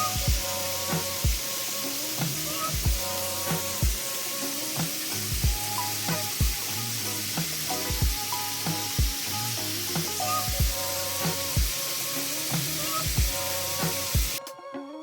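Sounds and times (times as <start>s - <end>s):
constant hiss: 0.0s - 14.4s
background music with low thumps: 5.3s - 6.6s, 7.4s - 8.2s, 10.5s - 11.8s.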